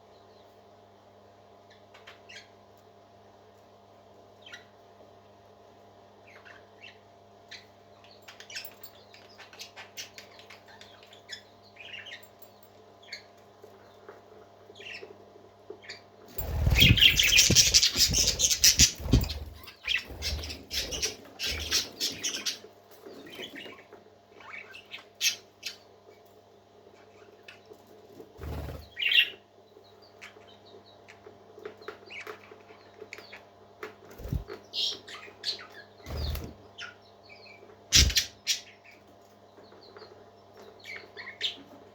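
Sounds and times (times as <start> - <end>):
parrots chirping and squawking: 15.9 - 25.8, 37.9 - 38.8
wing flapping: 16.3 - 21.9, 34.2 - 34.6
steady low hum: 16.3 - 23.7.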